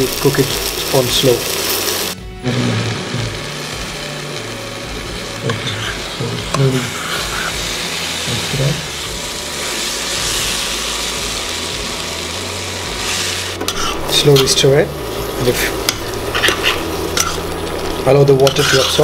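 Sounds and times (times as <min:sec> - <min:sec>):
chicken sizzling in pot: 0:00.0 - 0:19.0
spoon scraping and stirring: 0:05.5 - 0:07.6, 0:13.7 - 0:14.5, 0:15.9 - 0:17.4, 0:18.4 - 0:19.0.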